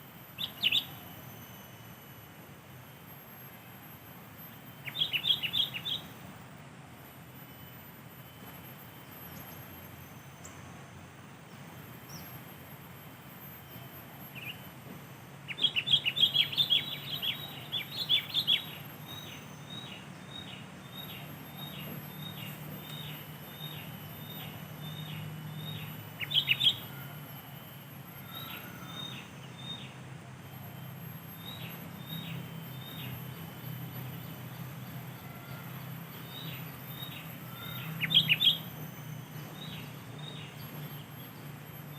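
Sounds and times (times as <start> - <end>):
birds chattering: 36.6 - 41.2.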